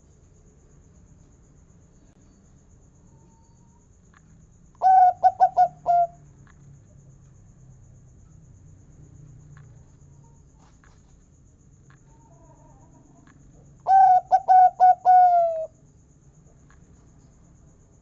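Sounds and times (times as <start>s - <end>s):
dove cooing: 4.8s - 6.2s, 12.1s - 15.7s.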